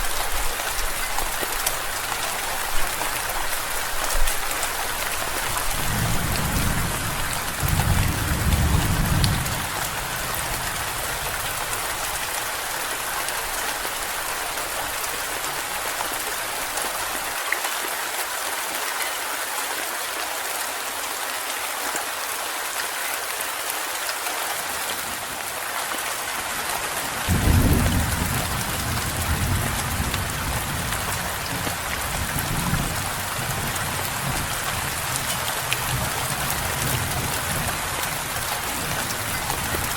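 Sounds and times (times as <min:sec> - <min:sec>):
heavy rain: 0:00.0 - 0:39.9
thunder rolling: 0:05.8 - 0:09.8.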